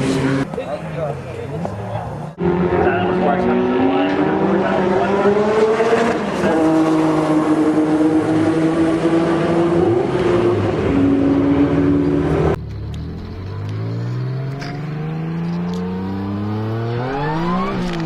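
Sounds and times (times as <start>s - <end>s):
car engine accelerating hard: 1.9s - 18.0s.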